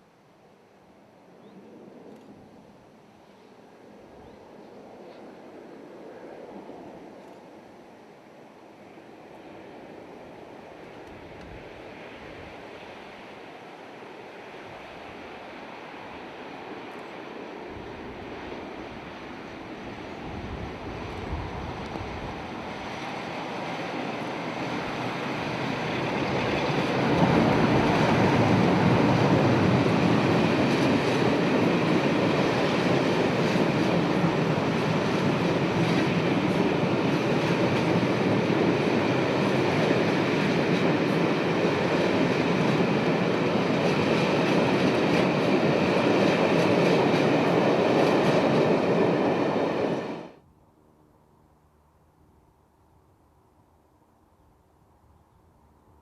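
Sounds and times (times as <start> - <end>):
diesel train passing: 0.0 - 51.1
wheels rumbling on rails: 9.0 - 50.4.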